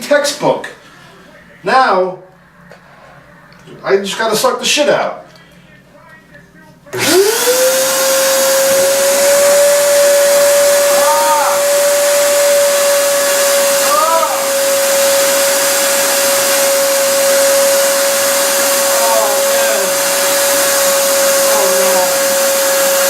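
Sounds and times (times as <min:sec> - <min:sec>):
wet dry vacuum motor whining: 0:06.9 - 0:23.0.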